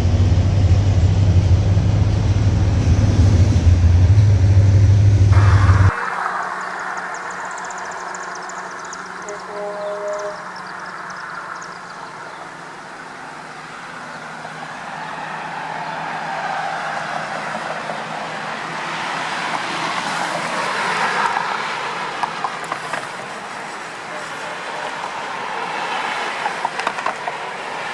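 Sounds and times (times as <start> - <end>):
diesel trucks running: 0.0 - 27.9
road noise: 0.0 - 27.9
two-tone truck horn blast: 9.2 - 10.6.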